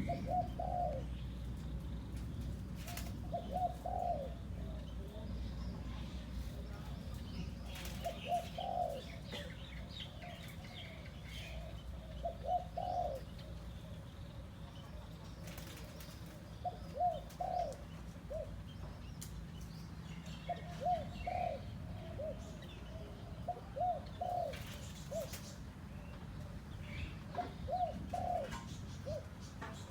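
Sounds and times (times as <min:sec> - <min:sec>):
dove cooing: 0:00.0 - 0:01.5, 0:02.5 - 0:05.3, 0:07.5 - 0:14.0, 0:14.8 - 0:18.7, 0:20.4 - 0:25.6, 0:27.0 - 0:29.9
small birds chirping: 0:00.0 - 0:29.9.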